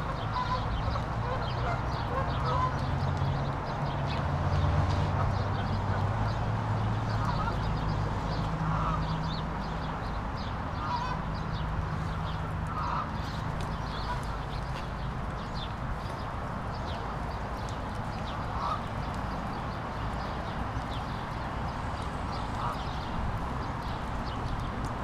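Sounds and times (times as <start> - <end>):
bird honking calls: 0.0 - 2.8, 10.8 - 11.2, 12.7 - 13.2, 18.5 - 18.9.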